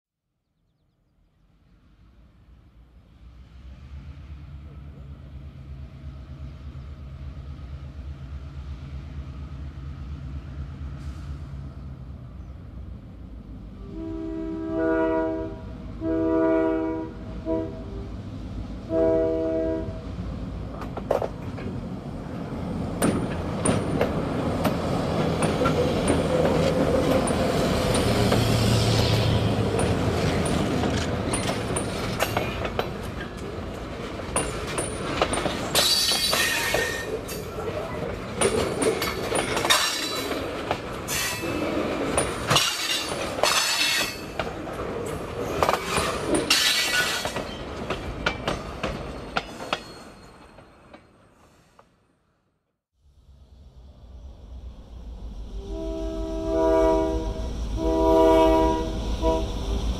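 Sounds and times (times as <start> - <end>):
diesel locomotive engine: 1.5 - 51.9, 53.0 - 59.9
multi-tone train horn: 13.7 - 20.2, 55.6 - 59.9
wheels clicking over rail joints: 29.6 - 51.1.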